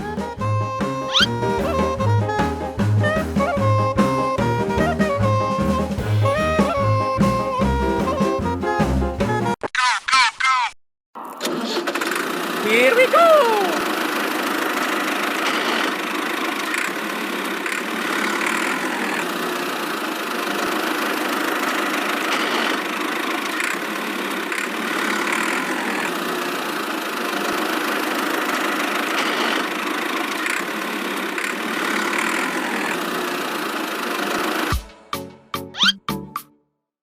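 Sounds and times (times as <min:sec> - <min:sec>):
small motor running: 0:01.1 - 0:01.3, 0:11.4 - 0:34.8.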